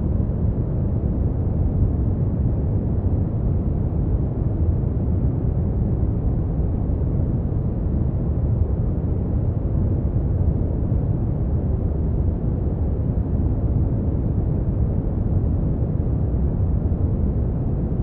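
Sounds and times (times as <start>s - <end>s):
deep rumbling brown noise: 0.0s - 18.0s.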